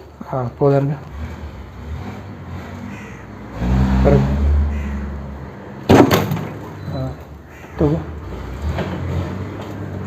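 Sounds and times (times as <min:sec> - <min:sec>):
vehicle engine revving: 0:00.9 - 0:06.0, 0:07.6 - 0:10.0.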